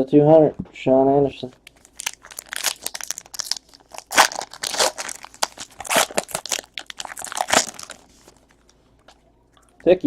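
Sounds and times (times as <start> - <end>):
card pack wrappers crinkling: 1.6 - 8.8.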